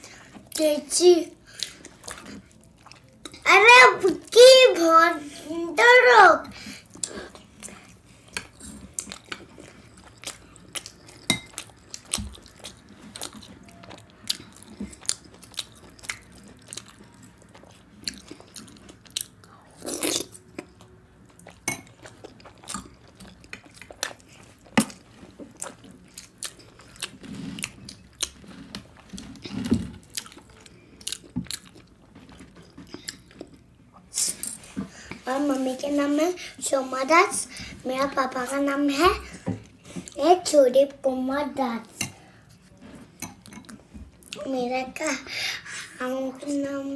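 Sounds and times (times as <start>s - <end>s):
chewing and biting food: 1.5s - 3.4s, 6.9s - 34.2s.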